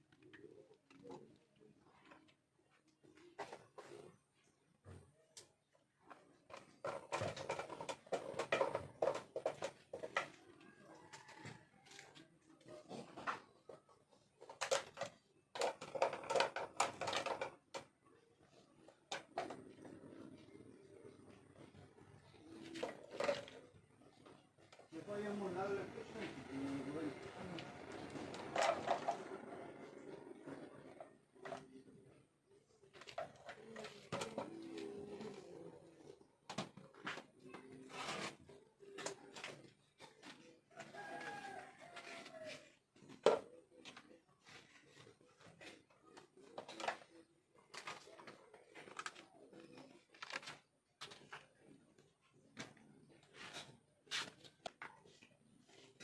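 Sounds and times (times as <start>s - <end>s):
clicks and knocks of objects handled: 5.0s - 20.5s, 21.6s - 25.2s, 27.2s - 56.0s
household knocks and clatter: 6.5s - 10.4s.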